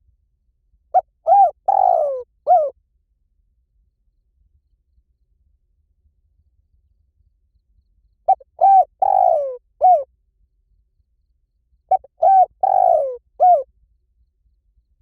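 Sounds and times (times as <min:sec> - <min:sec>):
dove cooing: 0:01.0 - 0:02.7, 0:08.3 - 0:10.1, 0:11.9 - 0:13.7.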